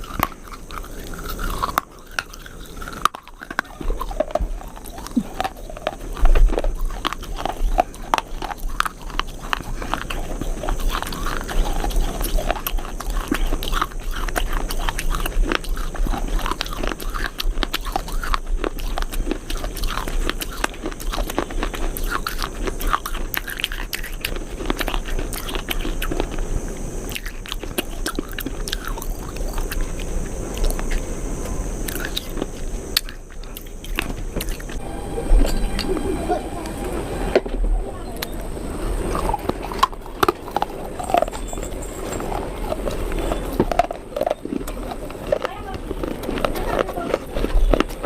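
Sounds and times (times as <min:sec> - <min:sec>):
person chewing crunchy food: 0:00.0 - 0:36.0, 0:38.2 - 0:48.0.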